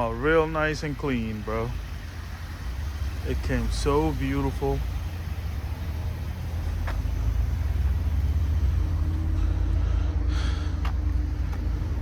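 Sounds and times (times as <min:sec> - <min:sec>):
pickup engine rumbling: 0:00.0 - 0:12.0.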